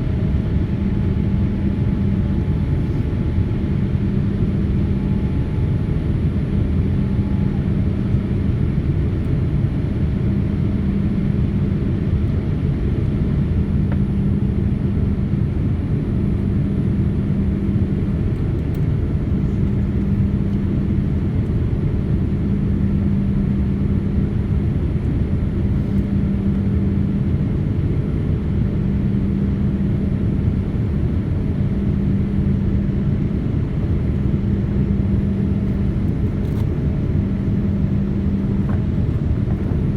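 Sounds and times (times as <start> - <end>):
airliner cabin rumble: 0.0 - 39.9
hum: 13.0 - 39.9.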